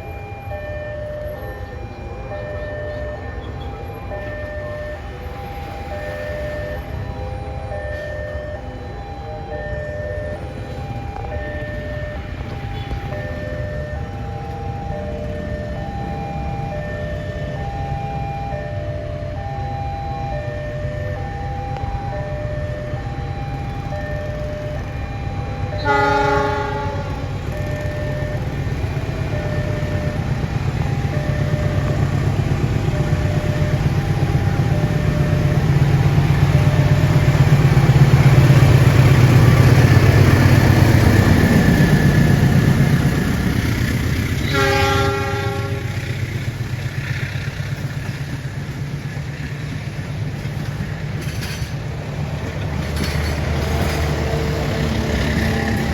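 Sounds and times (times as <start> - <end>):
train rumbling past: 0.0 - 55.9
two-tone crossing warning signal: 0.0 - 55.9
train horn blast: 25.7 - 27.8, 44.4 - 46.2.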